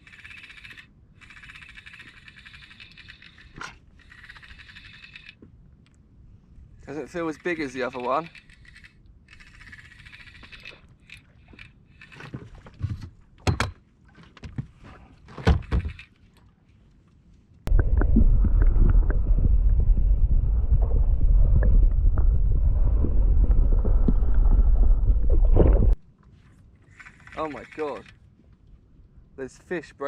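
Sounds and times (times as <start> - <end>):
boat engine low rumble: 17.7 - 26.0
wind rushing: 17.7 - 26.0.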